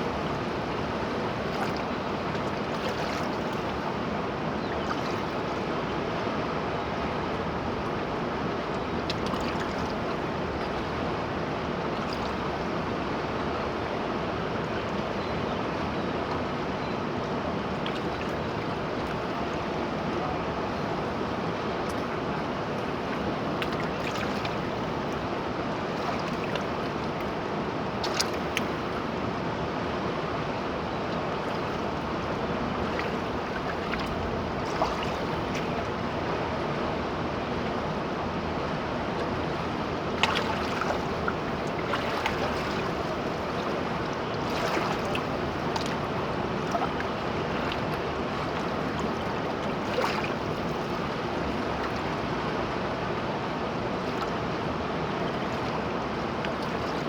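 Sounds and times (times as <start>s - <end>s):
river water rushing: 16.5s - 57.0s
short splashes: 32.8s - 35.8s, 39.5s - 51.2s.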